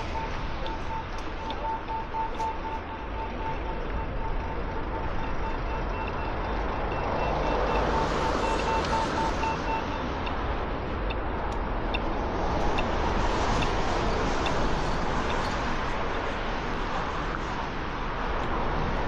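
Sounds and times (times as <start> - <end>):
rapid electronic beeps: 0.0 - 10.4
city street traffic: 0.0 - 19.0.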